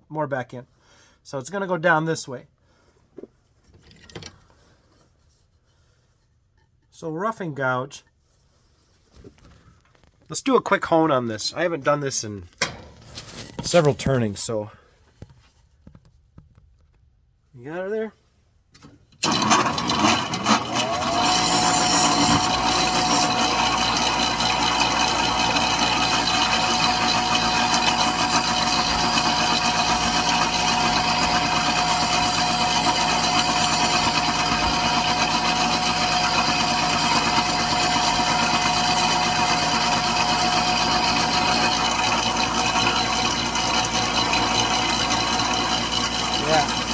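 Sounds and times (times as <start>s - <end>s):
grinder motor whine: 19.2s - 46.9s.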